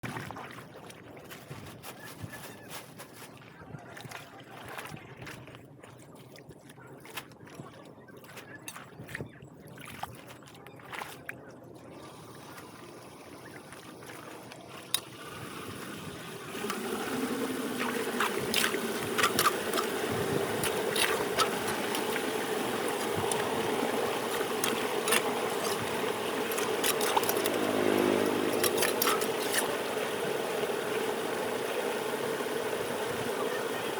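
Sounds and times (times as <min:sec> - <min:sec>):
engine running: 0:11.9 - 0:33.9.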